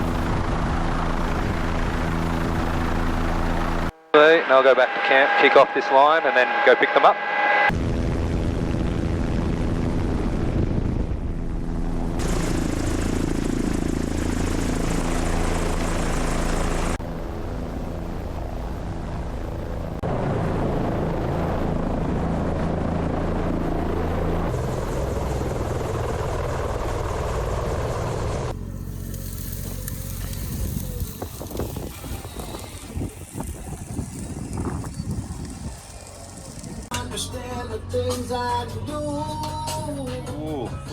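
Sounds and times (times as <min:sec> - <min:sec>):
helicopter engine and rotor: 0:00.0 - 0:28.9.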